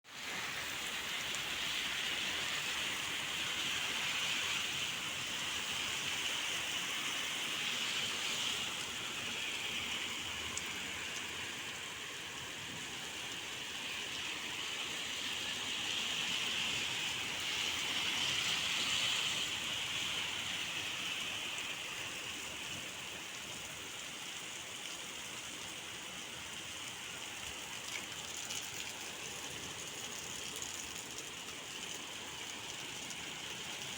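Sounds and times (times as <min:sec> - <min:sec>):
rain falling: 0:00.1 - 0:33.9.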